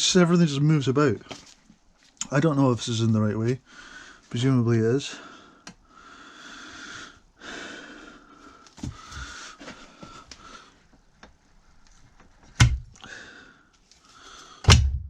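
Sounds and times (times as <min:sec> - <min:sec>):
loud metal clunks: 0:14.7 - 0:15.0.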